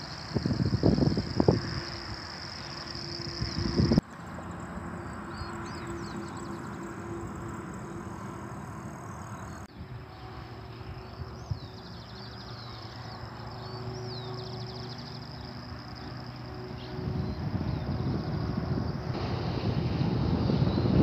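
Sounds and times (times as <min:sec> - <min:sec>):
birds chirping and trilling: 0:00.0 - 0:19.1.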